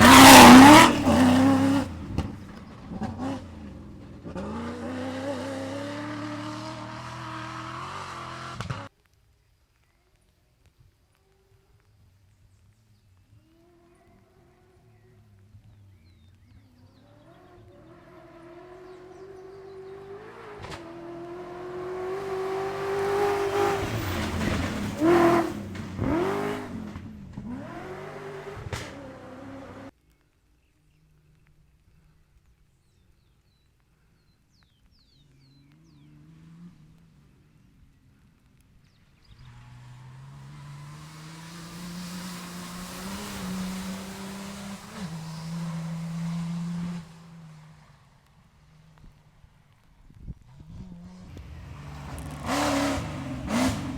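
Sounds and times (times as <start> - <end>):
rally car engine passing: 0.0 - 8.9, 14.8 - 29.9, 35.5 - 53.9.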